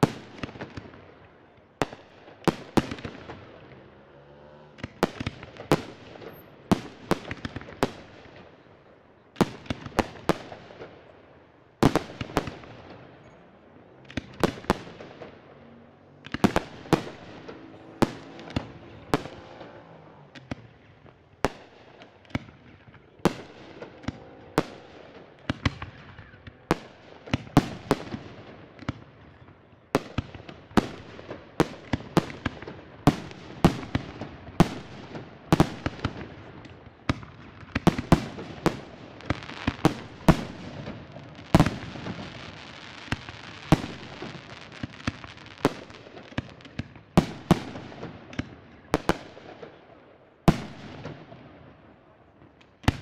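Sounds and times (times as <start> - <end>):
firework crackling: 13.8 - 29.1, 30.0 - 49.4.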